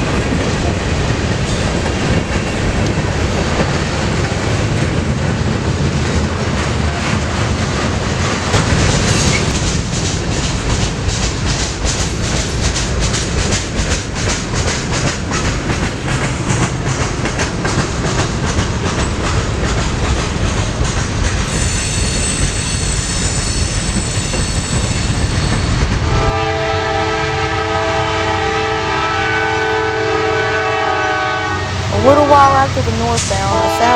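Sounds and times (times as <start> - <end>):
freight train rolling past: 0.0 - 33.9
high-pitched squeal: 21.5 - 26.2
locomotive air horn: 26.0 - 32.2, 33.5 - 33.9.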